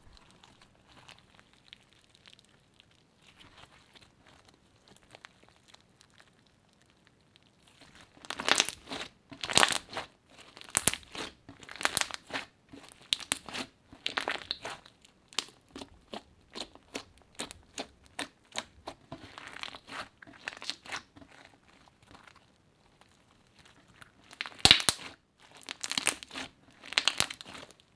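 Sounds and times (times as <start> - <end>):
crunchy slime crackling: 0.0 - 27.9.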